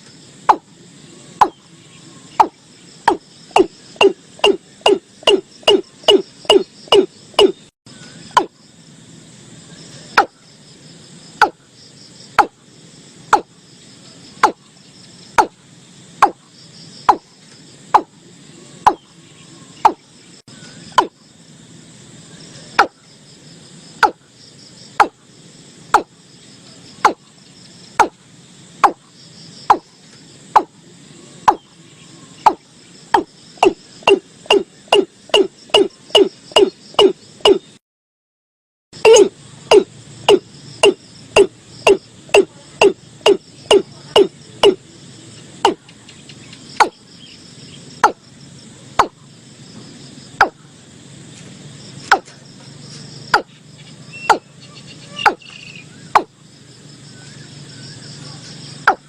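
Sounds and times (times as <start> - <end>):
bird calling sharp knock-like notes: 0.5 - 0.7, 1.4 - 1.6, 2.4 - 7.6, 8.3 - 8.5, 10.2 - 10.4, 11.4 - 11.6, 12.4 - 12.6, 13.3 - 13.5, 14.4 - 14.6, 15.4 - 15.6, 16.2 - 16.4, 17.1 - 17.3, 18.9 - 19.1, 19.8 - 20.0, 20.9 - 21.2, 22.8 - 23.0, 24.0 - 24.2, 25.0 - 25.2, 25.9 - 26.1, 27.0 - 27.3, 28.0 - 28.2, 28.8 - 29.0, 29.7 - 29.9, 30.6 - 30.8, 31.5 - 31.7, 32.4 - 37.7, 39.1 - 44.8, 49.0 - 49.2, 52.1 - 52.3, 53.3 - 53.5, 54.2 - 54.5, 55.2 - 56.3.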